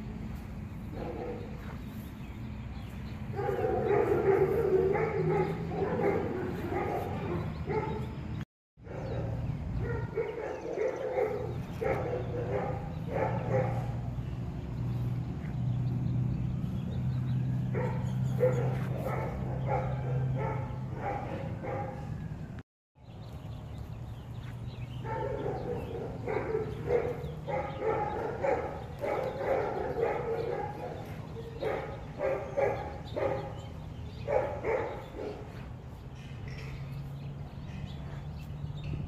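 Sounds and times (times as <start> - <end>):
dogs barking: 0.9 - 1.8, 3.3 - 14.8, 16.9 - 22.2, 25.0 - 36.7.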